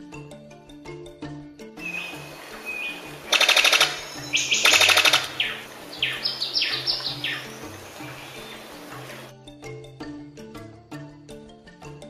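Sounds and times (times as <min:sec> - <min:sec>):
soft background music: 0:00.0 - 0:12.0
bird calls with rattles: 0:01.8 - 0:09.3.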